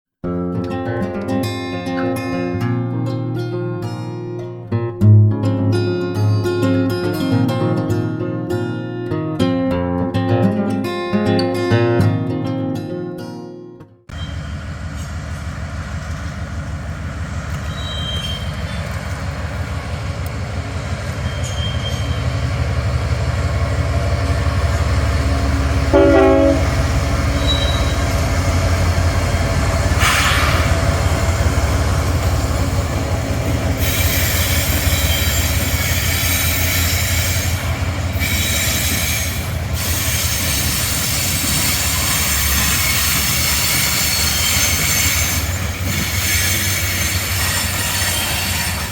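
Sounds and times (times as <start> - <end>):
brief pitched tone: 14.1 - 14.6, 26.0 - 28.3
locomotive engine rumbling: 14.1 - 48.9
wheels hissing and squealing: 14.1 - 48.9.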